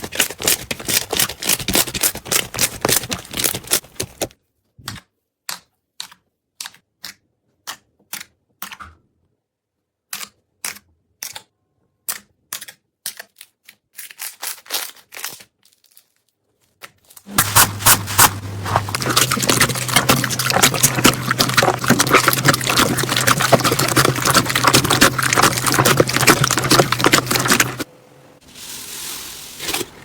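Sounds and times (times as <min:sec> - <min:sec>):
slime squelching: 0:00.0 - 0:04.3, 0:17.3 - 0:27.9.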